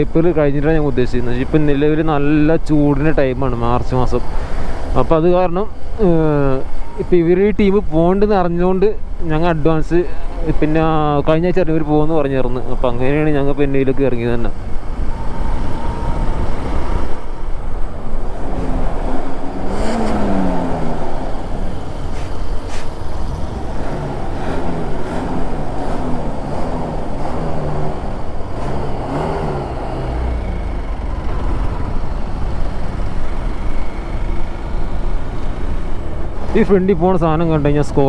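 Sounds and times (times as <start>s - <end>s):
road rumble: 0.0s - 38.0s
vehicle engine revving while driving: 18.3s - 36.5s.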